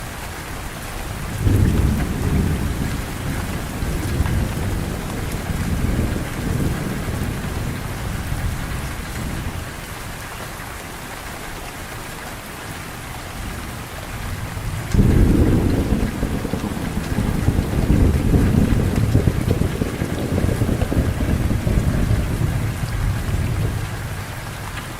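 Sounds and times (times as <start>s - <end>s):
heavy rain falling: 0.0s - 24.9s
thunder rumbling: 1.3s - 9.7s, 13.4s - 24.9s.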